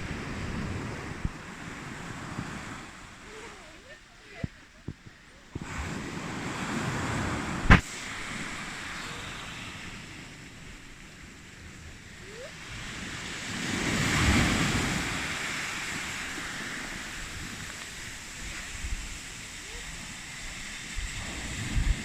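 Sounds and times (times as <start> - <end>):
surf breaking on a beach: 0.0 - 22.0
wind buffeting microphone: 0.0 - 22.0
sharp thump: 7.7 - 7.9.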